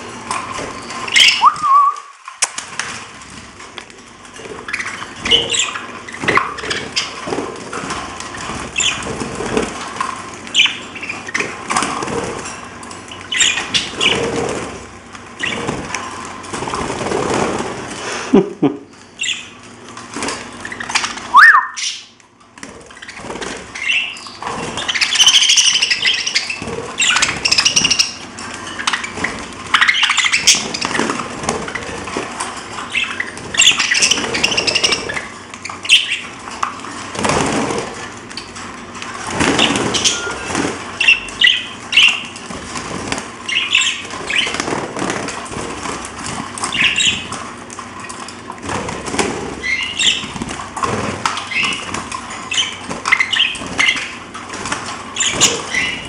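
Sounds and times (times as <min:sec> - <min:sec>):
wing flutters and rustling: 0:00.0 - 0:18.0, 0:22.3 - 0:56.0
parrots chirping: 0:00.2 - 0:02.2, 0:04.4 - 0:14.6, 0:15.3 - 0:15.8, 0:19.2 - 0:19.6, 0:20.4 - 0:22.2, 0:22.9 - 0:37.1, 0:38.1 - 0:42.5, 0:43.4 - 0:45.5, 0:46.4 - 0:47.4, 0:49.5 - 0:56.0.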